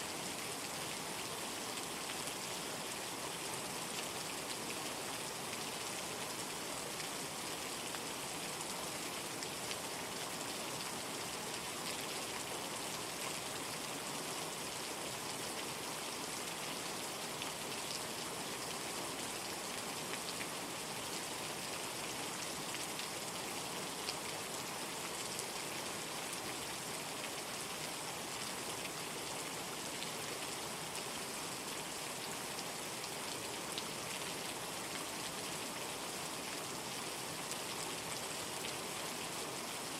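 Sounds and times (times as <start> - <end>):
steady rain falling: 0.0 - 39.9
raindrops pattering on a surface: 16.3 - 39.4.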